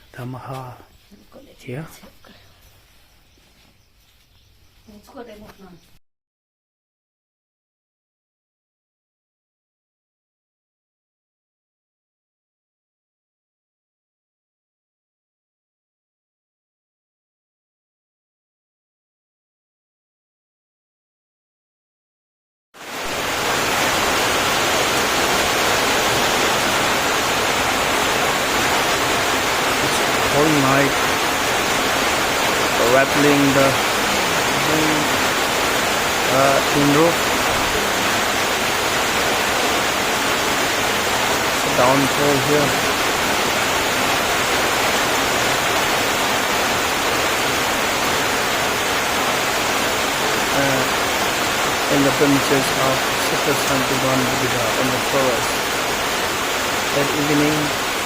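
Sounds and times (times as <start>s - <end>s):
heavy rain on a tin roof: 0.0s - 2.0s, 22.8s - 58.0s.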